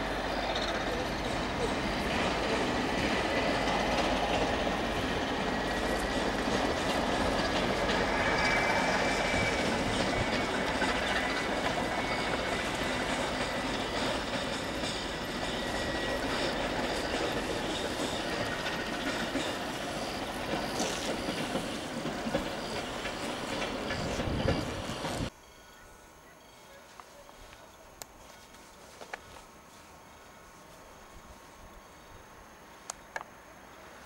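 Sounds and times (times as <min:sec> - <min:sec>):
train wheel and rail noise: 0:00.0 - 0:34.0
high wheel squeal: 0:05.2 - 0:21.9.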